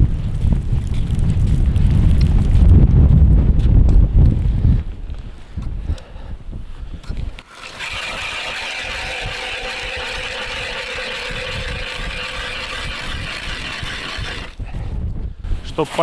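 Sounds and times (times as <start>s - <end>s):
ice auger whining: 7.0s - 14.8s.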